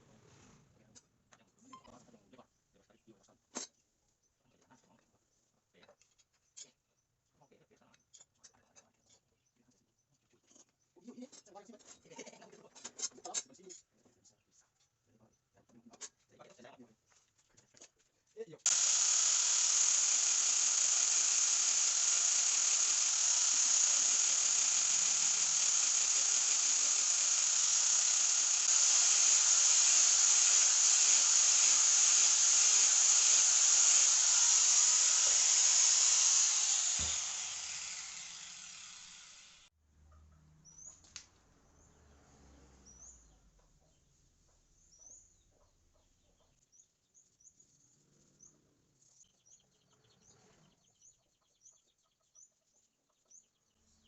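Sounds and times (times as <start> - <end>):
faint bird chirps: 1.4 - 11.2, 40.6 - 41.9
power tool grinding steel blade: 18.7 - 39.7.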